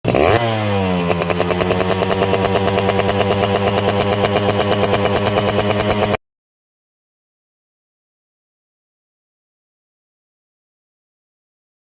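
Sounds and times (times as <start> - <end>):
two-stroke engine idling: 0.0 - 6.2.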